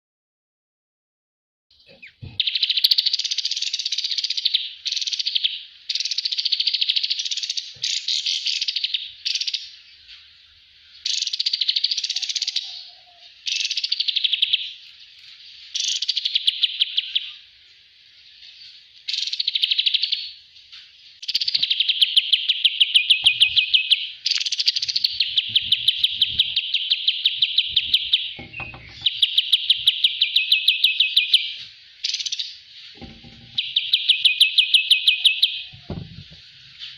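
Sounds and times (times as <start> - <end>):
songbird chattering trills: 1.8 - 9.9, 15.6 - 17.5, 21.2 - 36.9.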